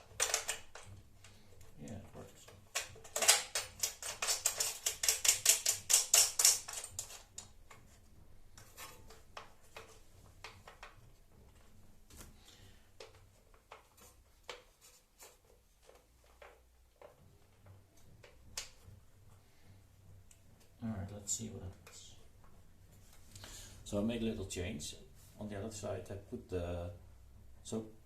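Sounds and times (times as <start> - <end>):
hardware being handled: 0.0 - 19.3.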